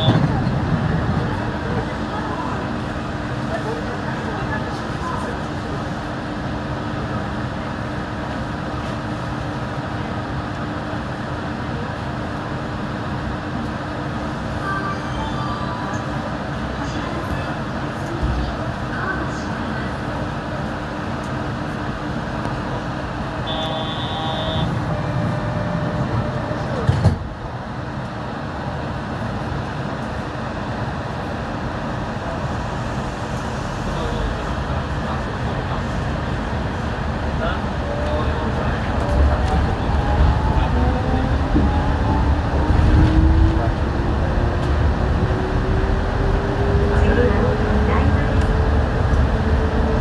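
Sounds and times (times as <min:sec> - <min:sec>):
train rumbling: 0:00.0 - 0:50.0
train tyres rumbling on guideway: 0:32.2 - 0:50.0.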